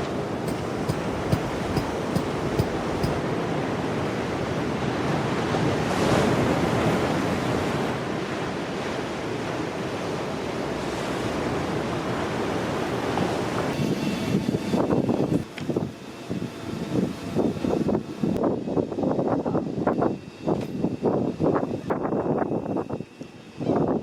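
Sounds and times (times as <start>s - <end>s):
strong wind: 13.8s - 24.0s.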